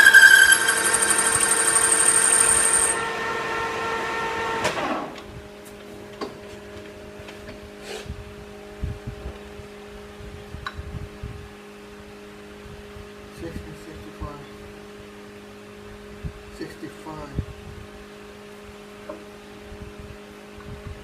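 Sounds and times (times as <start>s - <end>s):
metal lathe winding down: 0.0s - 3.2s.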